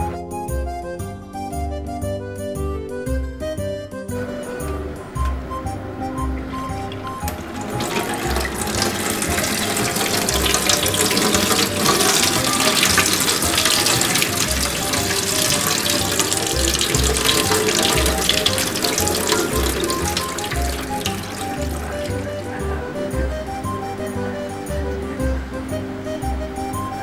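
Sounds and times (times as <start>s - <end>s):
music with steady beat: 0.0s - 27.0s
tap water running and splashing: 6.4s - 25.1s.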